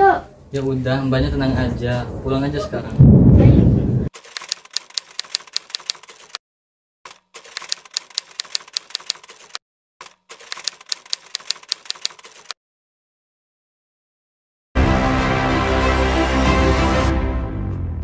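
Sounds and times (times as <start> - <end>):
typewriter key clicks: 4.2 - 6.4, 7.1 - 12.6.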